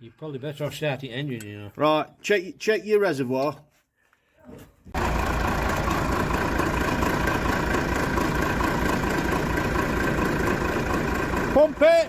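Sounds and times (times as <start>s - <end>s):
diesel engine idling: 4.9s - 12.0s.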